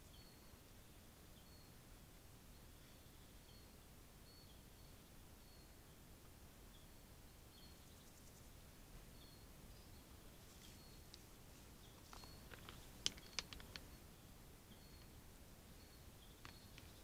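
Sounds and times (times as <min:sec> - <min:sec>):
sharp clicks and snaps: 0:12.1 - 0:13.9.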